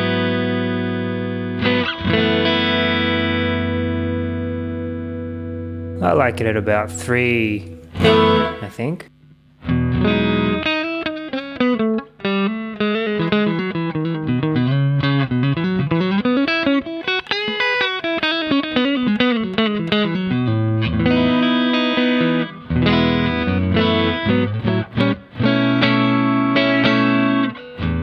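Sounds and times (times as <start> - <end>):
clean electric guitar: 0.0 - 28.0.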